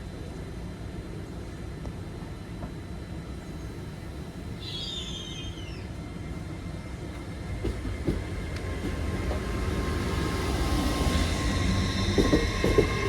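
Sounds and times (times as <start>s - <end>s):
train rumbling: 0.0s - 13.0s
bird chirping: 4.6s - 5.9s.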